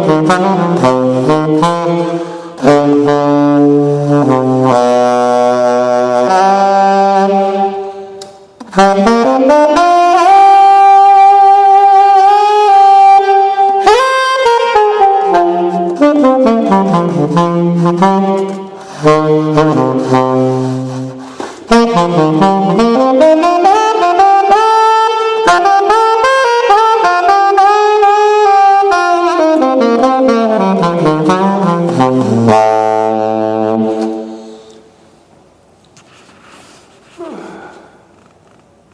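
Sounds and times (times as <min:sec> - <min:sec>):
saxophone playing blues: 0:00.0 - 0:34.9.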